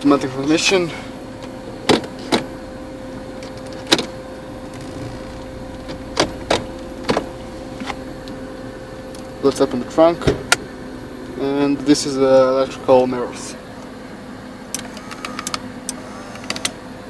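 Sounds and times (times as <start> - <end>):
car engine idling hum: 0.0 - 17.0
car controls clicking: 1.4 - 9.7, 14.6 - 16.8.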